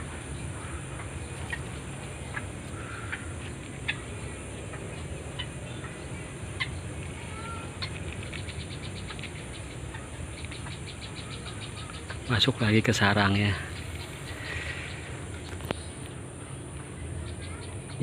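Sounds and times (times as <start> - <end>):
bird calling: 0.0 - 18.0
low background noise: 0.0 - 18.0.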